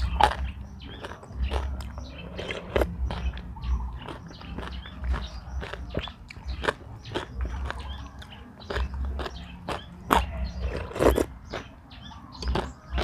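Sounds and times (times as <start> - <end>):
person chewing crunchy food: 0.0 - 11.7, 12.4 - 13.0.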